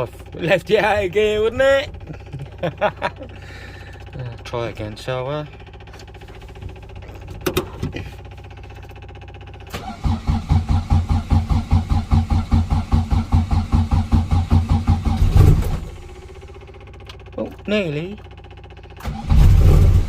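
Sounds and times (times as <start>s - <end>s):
low hum: 0.0s - 20.0s
starter motor cranking engine: 0.0s - 20.0s.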